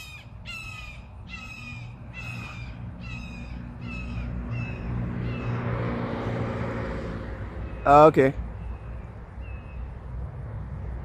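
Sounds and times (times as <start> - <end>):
crow cawing: 0.0 - 5.6
vehicle engine hum: 0.0 - 11.0.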